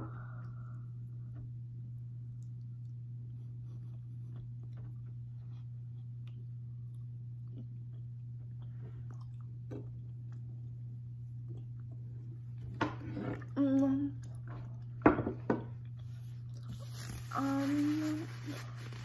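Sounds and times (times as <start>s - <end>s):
person chewing: 2.2s - 15.0s, 15.6s - 17.4s
person humming mmm: 13.2s - 14.3s, 17.2s - 18.7s.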